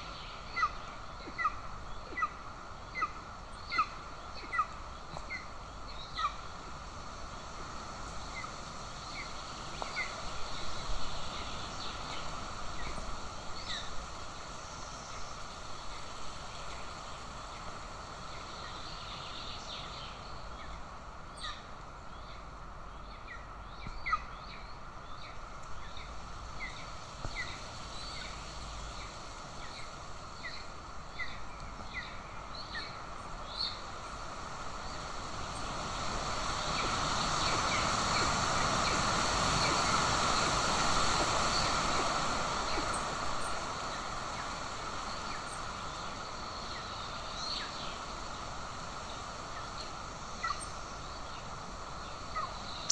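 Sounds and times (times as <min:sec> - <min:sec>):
wind noise: 0:23.8 - 0:52.9.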